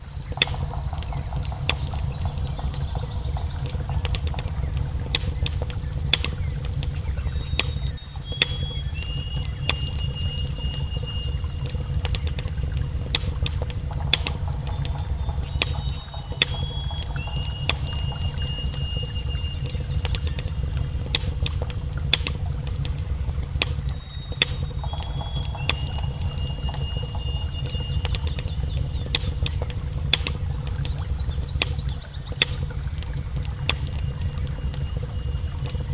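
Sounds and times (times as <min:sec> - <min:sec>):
fire crackling and popping: 0:00.0 - 0:35.9
low rumble: 0:00.0 - 0:35.9
thin high whistle: 0:07.1 - 0:12.0, 0:15.2 - 0:20.6.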